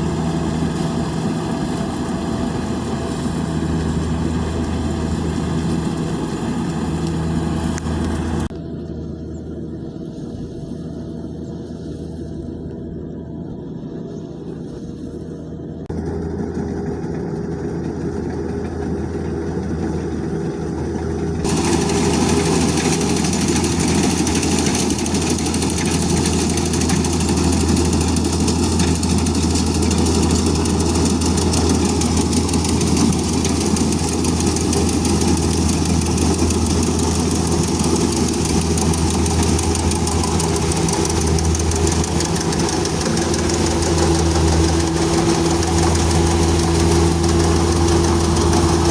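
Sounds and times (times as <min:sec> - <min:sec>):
harvester engine humming: 0:00.0 - 0:09.8, 0:21.4 - 0:48.9.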